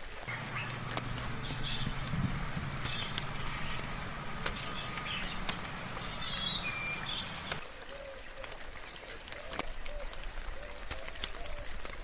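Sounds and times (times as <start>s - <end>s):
sharp drips: 0.0s - 12.0s
soft rain falling: 0.0s - 12.0s
birds chirping: 0.2s - 7.6s
low steady hum: 0.2s - 7.6s.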